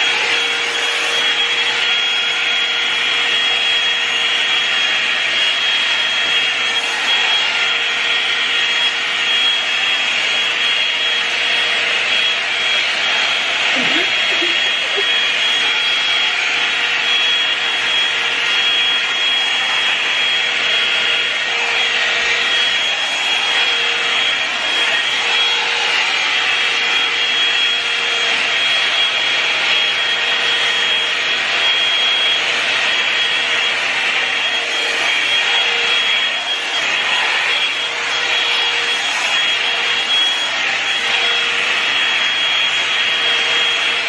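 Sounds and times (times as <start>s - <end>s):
hair dryer brush running: 0.0s - 44.0s.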